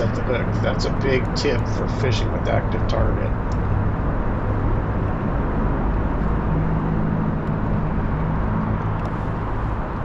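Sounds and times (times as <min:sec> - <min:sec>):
boat motor running: 0:00.0 - 0:05.3
higher hum: 0:00.0 - 0:08.5.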